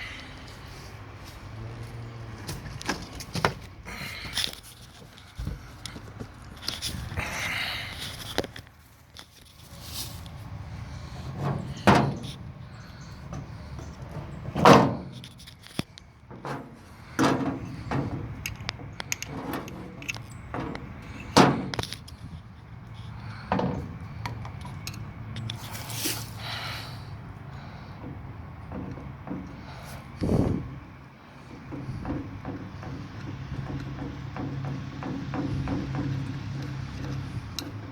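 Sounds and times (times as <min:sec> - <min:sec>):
metal tools clanking: 0:11.1 - 0:22.3.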